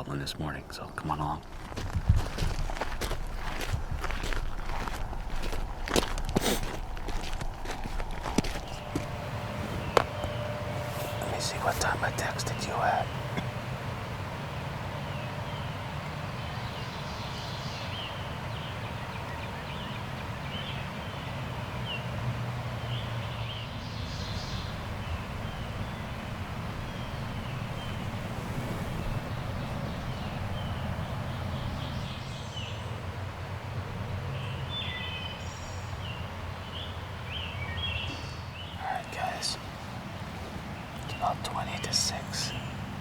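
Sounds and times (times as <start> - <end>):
small birds chirping: 0.0 - 43.0
steady low rumble: 0.6 - 34.8.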